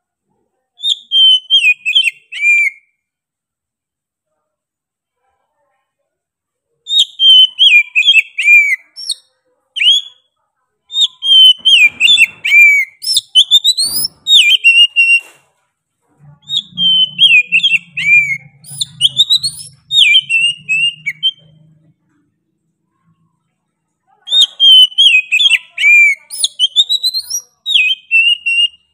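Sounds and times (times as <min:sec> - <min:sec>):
bird singing whistled notes: 0:00.8 - 0:02.9, 0:06.9 - 0:09.2, 0:10.9 - 0:15.2, 0:16.4 - 0:21.8, 0:24.4 - 0:28.9.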